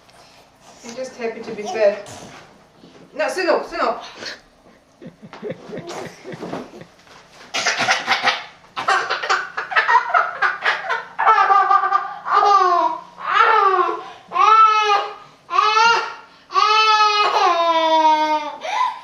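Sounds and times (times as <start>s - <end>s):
laughter: 5.0s - 7.0s, 9.2s - 12.1s.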